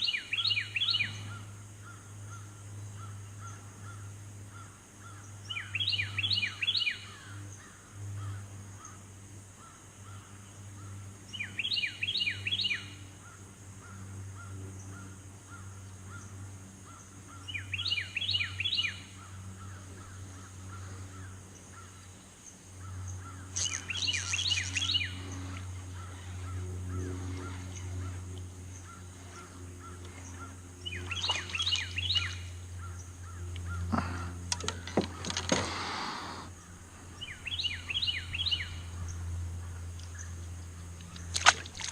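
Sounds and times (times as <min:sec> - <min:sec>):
steady low hum: 0:00.0 - 0:41.9
crow cawing: 0:32.8 - 0:34.3.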